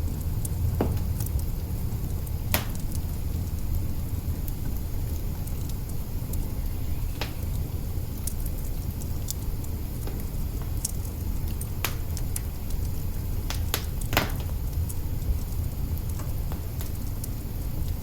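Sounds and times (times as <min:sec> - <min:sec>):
fire crackling and popping: 0:00.0 - 0:18.0
low rumble of flames: 0:00.0 - 0:18.0.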